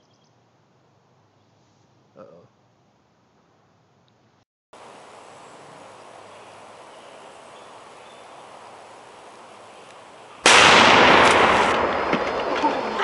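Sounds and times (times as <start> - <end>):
steady hiss: 4.8 - 13.0
loud explosion: 10.4 - 12.6.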